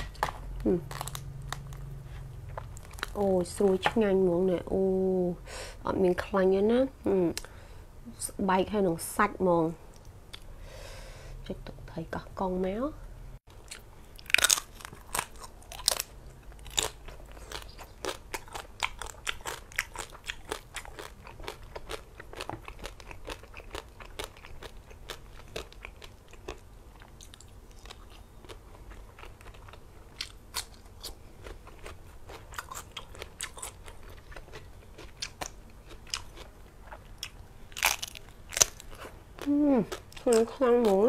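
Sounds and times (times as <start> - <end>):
crunching and chewing: 0.0 - 3.8, 13.5 - 41.0.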